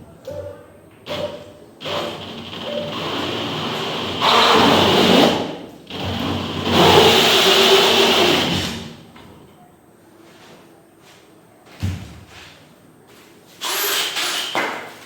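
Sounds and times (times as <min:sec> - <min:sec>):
power tool motor running: 0:01.1 - 0:09.0, 0:13.6 - 0:14.6.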